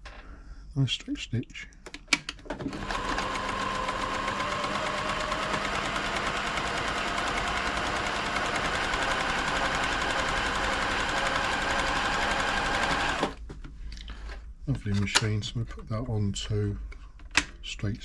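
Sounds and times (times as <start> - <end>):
sewing machine running: 2.6 - 13.4.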